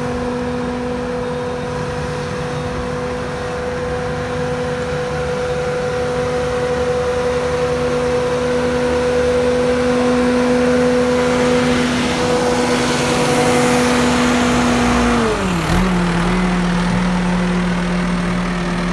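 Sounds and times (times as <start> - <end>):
diesel engine running: 0.0 - 18.9.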